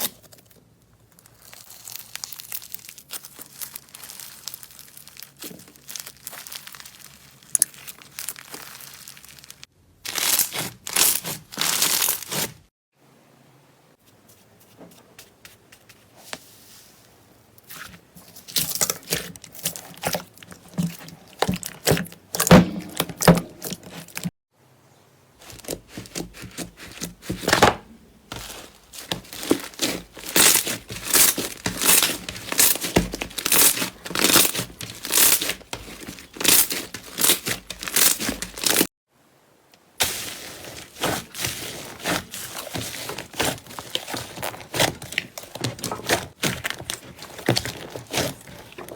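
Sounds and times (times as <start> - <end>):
slime crackling and popping: 1.1 - 12.5, 28.4 - 38.9, 40.0 - 48.9.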